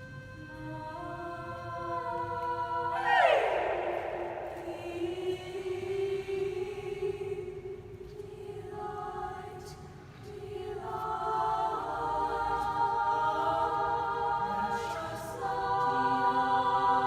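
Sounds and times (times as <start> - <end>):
choir singing held notes: 0.0 - 9.7, 10.3 - 17.0.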